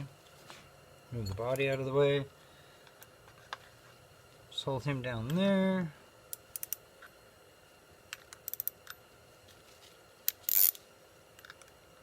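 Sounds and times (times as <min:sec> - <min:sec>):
metallic clicks of hand tools: 0:06.3 - 0:06.8, 0:08.1 - 0:09.0.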